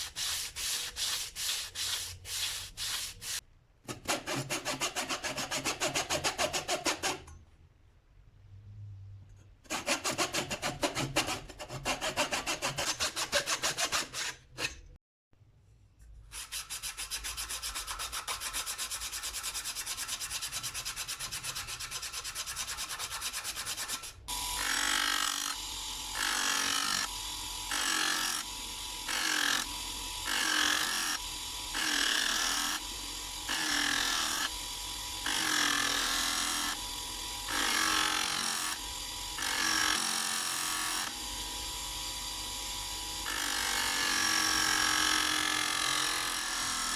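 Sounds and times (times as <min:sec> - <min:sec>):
wood being sanded by hand: 0:00.0 - 0:07.2, 0:09.7 - 0:14.4, 0:16.4 - 0:24.2.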